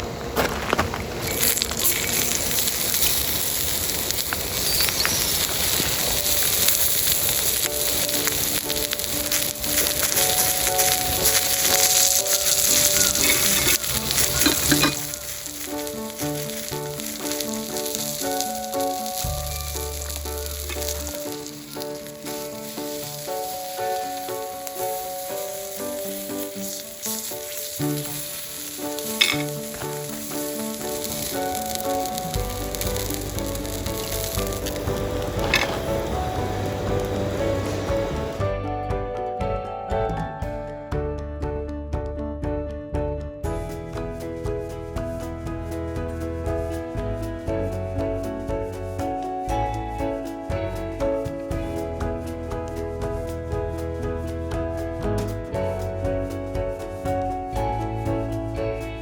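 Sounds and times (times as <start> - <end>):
food sizzling in sandwich maker: 0.0 - 38.4
campfire crackling and popping: 0.0 - 38.6
quiet background music: 0.0 - 59.0.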